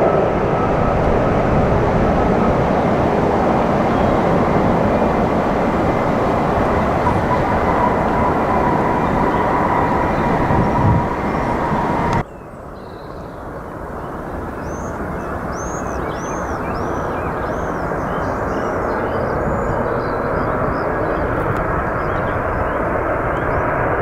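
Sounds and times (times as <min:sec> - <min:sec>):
loud rushing noise with whine: 0:00.0 - 0:12.2
jet airliner engine noise: 0:00.0 - 0:12.3, 0:13.4 - 0:24.0
birds chirping: 0:01.3 - 0:13.4.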